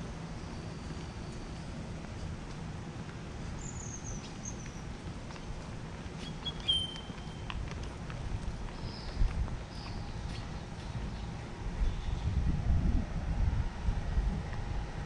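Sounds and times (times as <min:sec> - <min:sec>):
low rumble of background noise: 0:00.0 - 0:15.0
bird chirps and whistles: 0:06.2 - 0:07.4.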